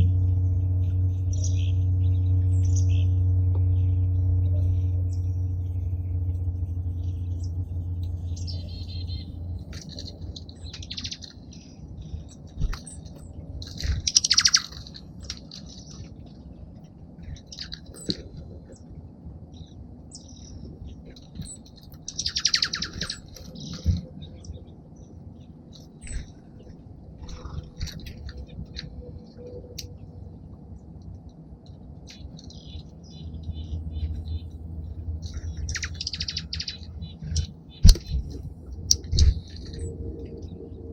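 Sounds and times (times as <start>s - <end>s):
low hum: 0.0s - 40.9s
songbirds chirping: 0.0s - 40.9s
rapid chattering bird calls: 6.8s - 16.4s, 17.2s - 18.9s, 19.5s - 30.1s, 32.1s - 40.5s.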